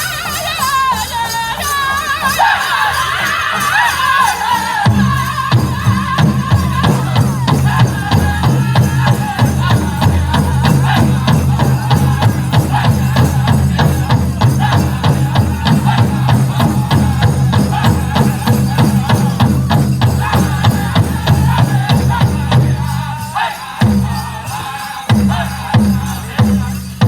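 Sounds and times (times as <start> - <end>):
people singing: 0.0 - 27.0
big drum fast beat: 3.9 - 27.0.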